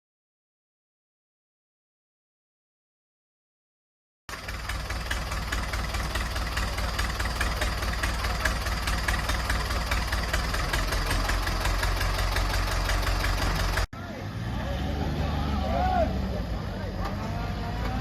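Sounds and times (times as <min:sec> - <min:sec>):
engine idling with knocking beat: 0:04.3 - 0:13.9.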